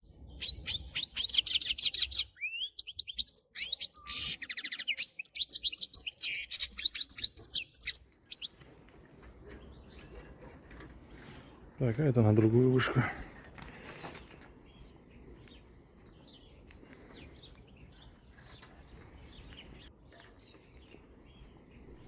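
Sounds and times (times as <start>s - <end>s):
goldfinch twittering song: 0.1s - 22.0s.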